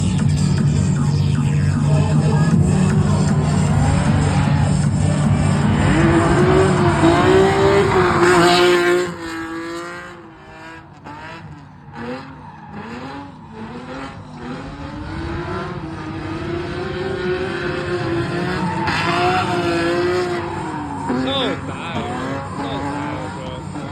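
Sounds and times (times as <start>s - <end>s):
car engine running hard: 0.0s - 23.9s
tyre squeal: 18.5s - 23.8s.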